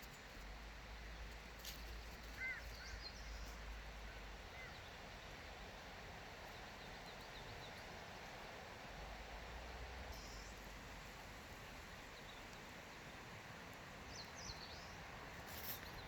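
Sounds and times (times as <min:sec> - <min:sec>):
faint forest ambience hiss: 0:00.0 - 0:16.0
small birds chirping: 0:01.2 - 0:05.0, 0:14.0 - 0:16.0.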